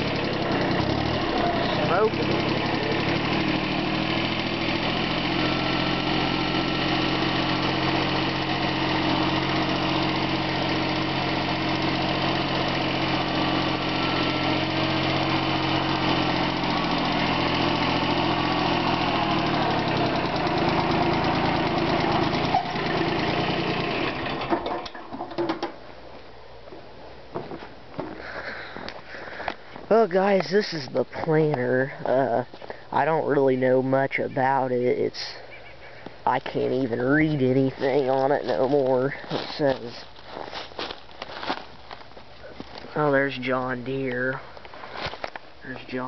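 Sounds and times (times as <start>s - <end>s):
garden tractor engine running: 0.0s - 26.2s, 27.7s - 46.0s.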